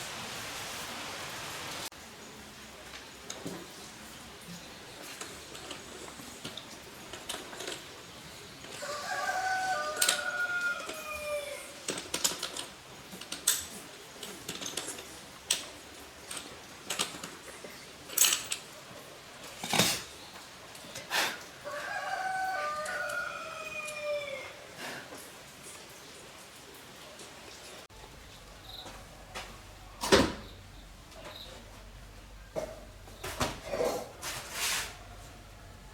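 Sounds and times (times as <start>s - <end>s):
rooster crowing: 8.8s - 11.9s, 21.6s - 24.7s.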